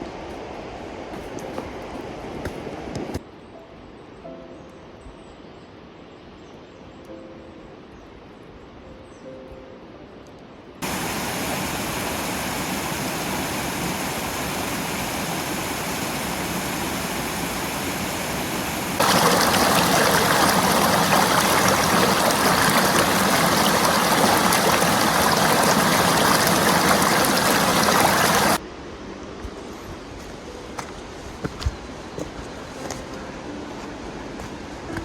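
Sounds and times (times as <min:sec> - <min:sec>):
rushing water: 0:10.8 - 0:28.6.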